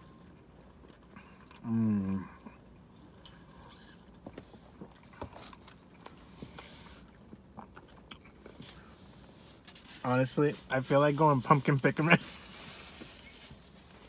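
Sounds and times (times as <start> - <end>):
person chewing: 0.6 - 9.7.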